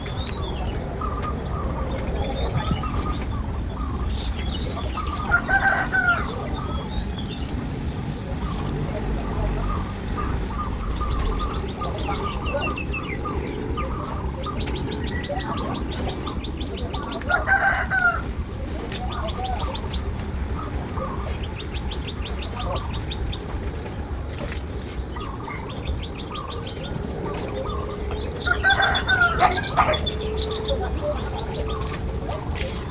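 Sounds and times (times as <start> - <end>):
chickens clucking: 0.0 - 32.9
rooster crowing: 5.3 - 6.7, 17.3 - 18.3, 28.4 - 31.8.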